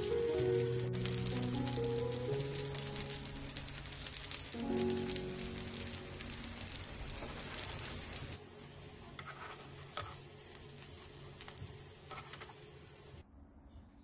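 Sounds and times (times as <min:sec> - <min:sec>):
pancakes sizzling in oil: 0:00.0 - 0:13.2
crackling oil pops: 0:00.9 - 0:08.4.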